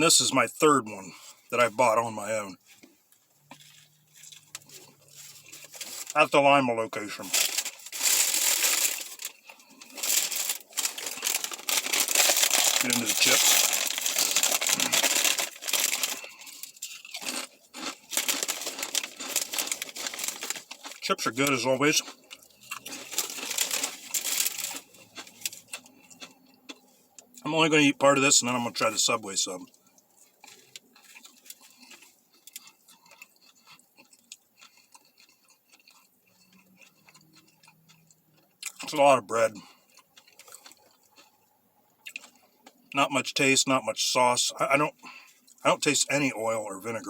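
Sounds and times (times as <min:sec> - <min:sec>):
person chewing: 0:02.5 - 0:06.2, 0:07.2 - 0:27.4, 0:29.6 - 0:42.9
chip bag crinkling and tearing: 0:03.4 - 0:06.3, 0:07.0 - 0:26.3, 0:30.2 - 0:39.0.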